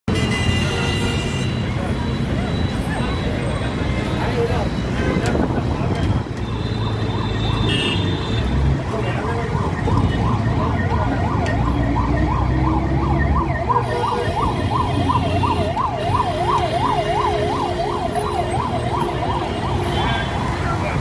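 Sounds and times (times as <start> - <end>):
low rumble of traffic: 0.1 - 21.0
electronic siren yelping: 9.4 - 20.8.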